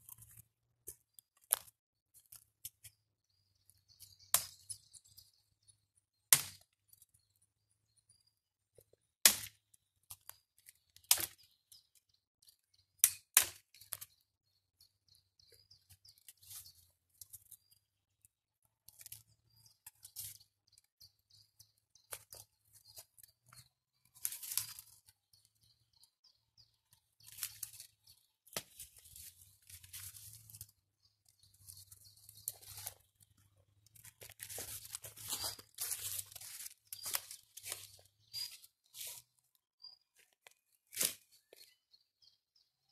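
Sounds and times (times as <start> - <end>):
twigs crackling and rustling: 0.0 - 3.0, 3.6 - 5.7, 8.8 - 14.3, 15.5 - 41.8
sharp twig snaps: 6.3 - 6.6, 9.2 - 9.6, 11.0 - 11.4, 40.9 - 41.2
faint bird chirps: 13.6 - 18.2, 19.0 - 34.0, 34.6 - 40.4, 41.2 - 42.9.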